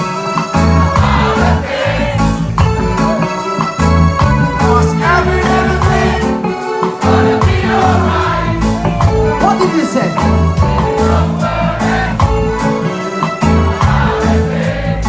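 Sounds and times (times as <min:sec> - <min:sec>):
live reggae band playing: 0:00.0 - 0:15.0
group of voices singing: 0:00.6 - 0:03.4, 0:04.6 - 0:09.4, 0:10.6 - 0:15.0.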